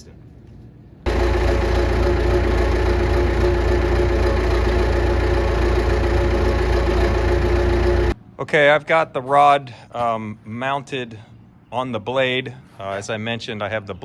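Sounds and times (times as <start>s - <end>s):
diesel engine idling: 1.1s - 8.2s.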